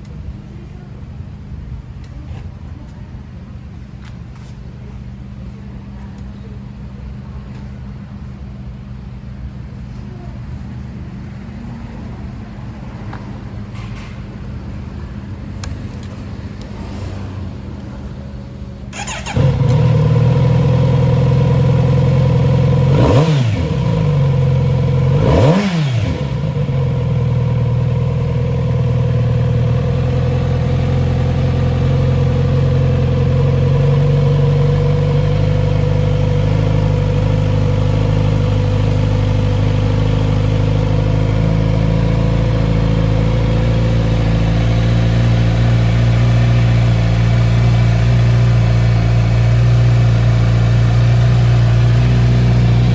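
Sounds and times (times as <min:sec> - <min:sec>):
motorcycle engine revving and idling: 0:06.6 - 0:52.9.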